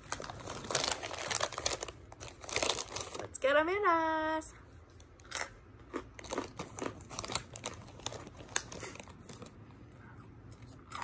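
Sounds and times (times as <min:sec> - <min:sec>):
chewing hard pretzels: 0:05.2 - 0:09.6.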